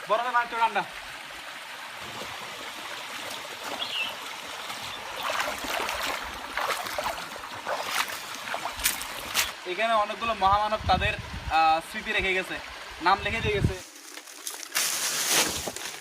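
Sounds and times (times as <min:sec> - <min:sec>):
stream water running: 0:00.0 - 0:16.0
water splashes: 0:00.8 - 0:09.6.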